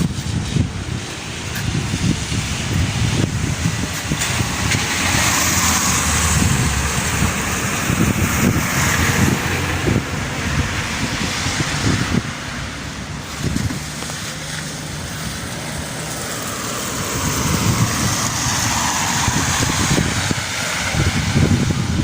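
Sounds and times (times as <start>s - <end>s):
wind gusting against microphone: 0.0s - 22.0s.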